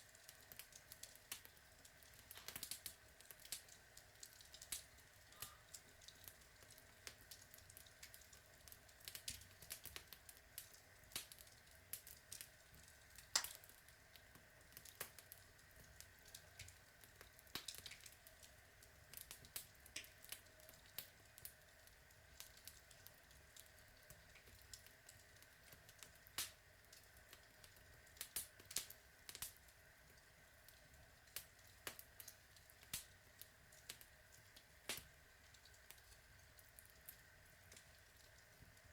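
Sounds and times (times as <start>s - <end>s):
log fire crackling: 0.1s - 38.9s.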